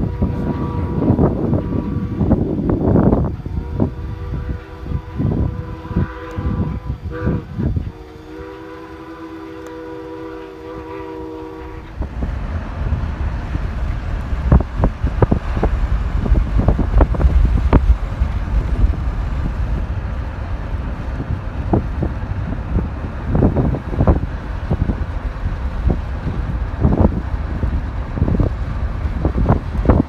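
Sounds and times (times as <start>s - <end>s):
steam locomotive whistle: 0.0s - 12.2s
wind buffeting microphone: 0.0s - 30.0s.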